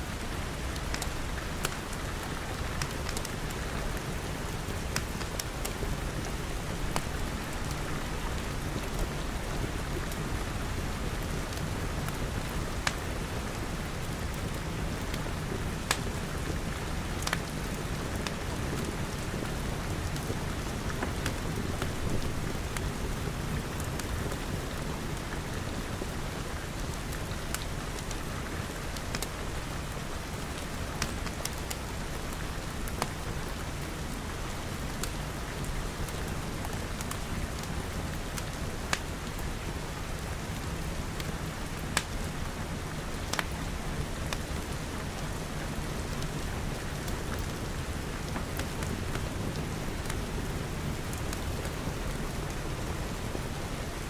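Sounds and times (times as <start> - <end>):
fireplace crackling pops: 15.9 - 16.1, 17.2 - 17.5, 43.2 - 43.5.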